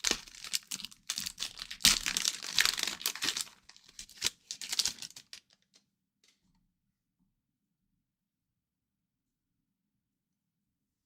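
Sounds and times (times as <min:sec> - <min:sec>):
wrapper tearing and crinkling: 0:00.0 - 0:05.7.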